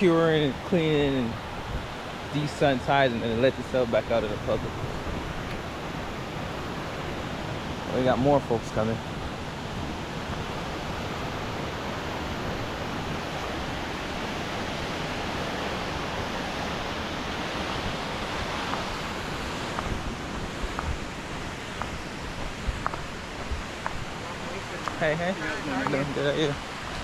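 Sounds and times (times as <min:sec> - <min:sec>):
waterfall rushing over rocks: 0:00.0 - 0:27.0.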